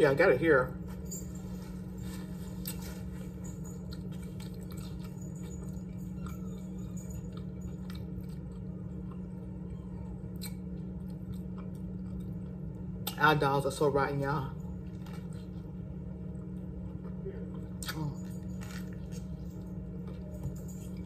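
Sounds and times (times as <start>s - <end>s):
steady low hum: 0.0s - 21.0s
chewing and biting sandwich: 1.7s - 13.2s, 14.7s - 21.0s.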